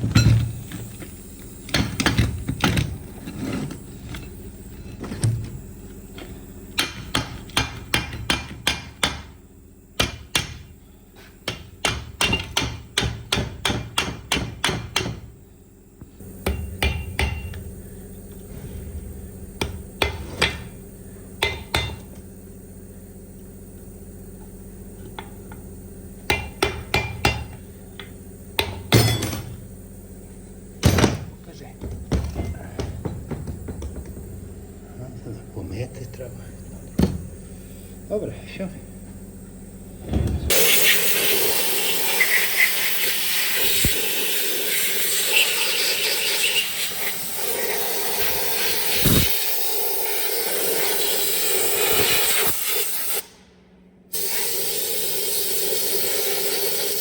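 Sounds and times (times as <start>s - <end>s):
hammer striking metal: 11.5s - 15.2s, 16.4s - 17.6s, 21.4s - 22.0s, 26.3s - 27.6s, 28.6s - 29.5s.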